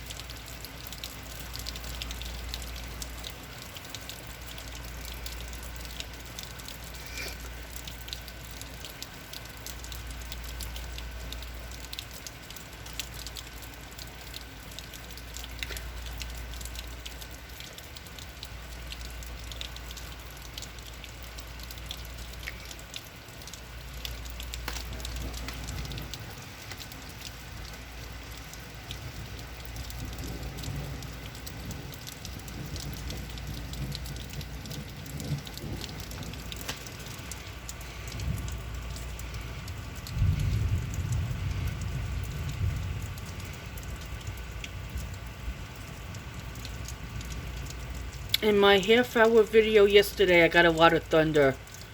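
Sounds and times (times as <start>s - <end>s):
rain falling: 0.0s - 51.9s
low rumble: 29.0s - 48.4s.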